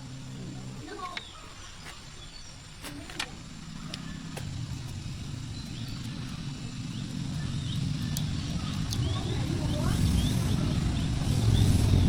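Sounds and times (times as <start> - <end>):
engine running with low rumble: 0.0 - 12.0
sharp clicks: 2.8 - 9.2.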